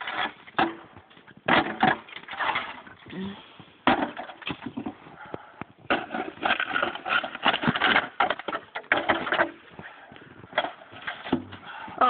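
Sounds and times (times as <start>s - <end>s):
shovel scraping snow and ice: 6.0s - 10.1s.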